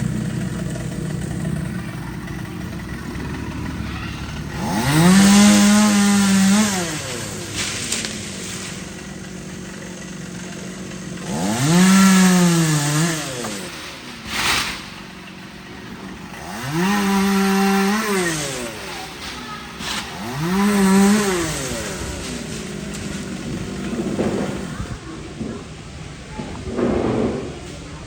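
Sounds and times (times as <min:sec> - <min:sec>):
chainsaw engine idling and revving: 0:00.0 - 0:25.0
sharp knock: 0:26.7 - 0:27.6.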